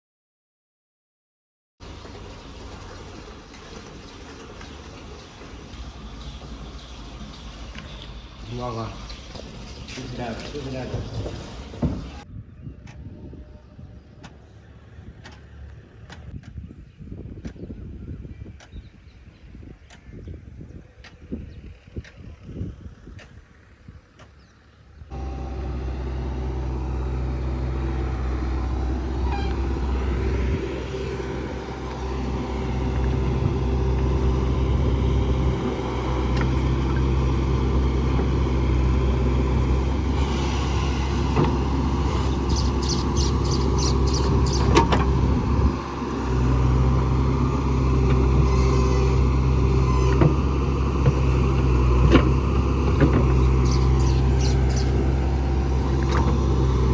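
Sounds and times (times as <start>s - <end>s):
heavy diesel engine running: 1.8s - 12.3s, 24.6s - 56.9s.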